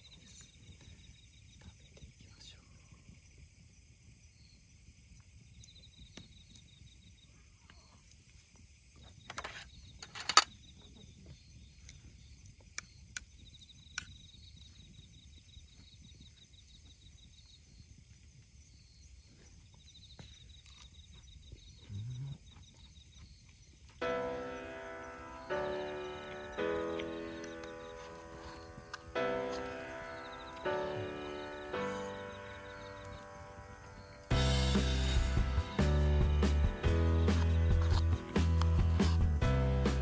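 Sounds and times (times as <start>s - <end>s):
crickets chirping: 0.0s - 40.0s.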